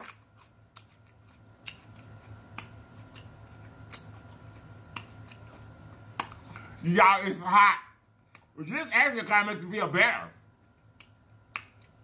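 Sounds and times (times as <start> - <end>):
pepper slice crunching: 0.0 - 6.7
faint low hum: 0.0 - 12.0.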